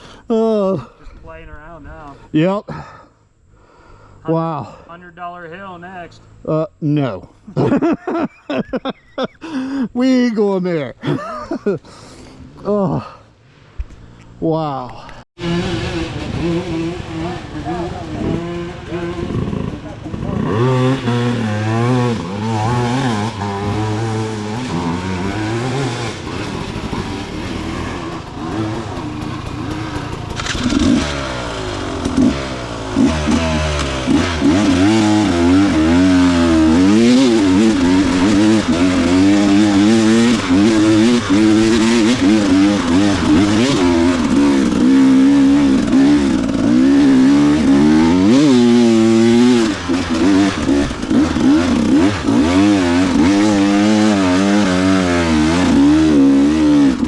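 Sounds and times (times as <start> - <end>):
dirt bike engine revving: 15.4 - 57.0.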